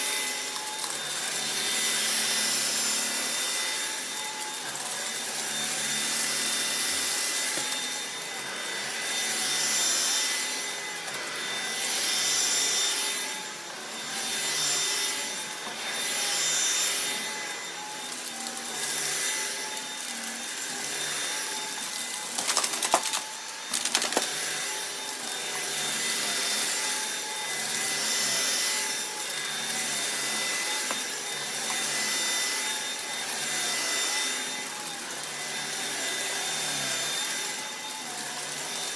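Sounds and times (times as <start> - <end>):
vacuum cleaner motor whine: 0.0 - 38.9
grit rattling in vacuum: 22.0 - 24.8.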